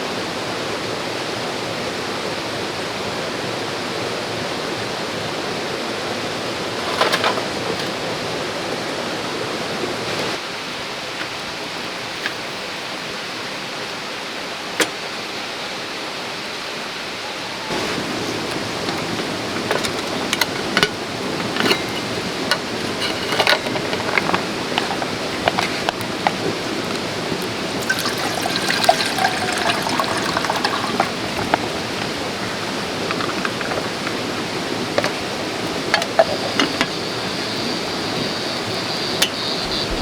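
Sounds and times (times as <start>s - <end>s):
stream flowing: 0.0s - 40.0s.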